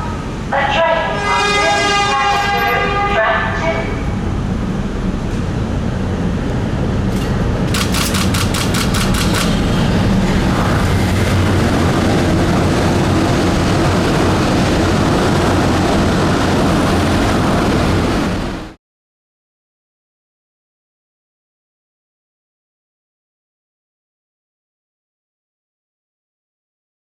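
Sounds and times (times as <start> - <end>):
monorail train rumbling: 0.0 - 18.8
sharp clicks: 7.7 - 9.6.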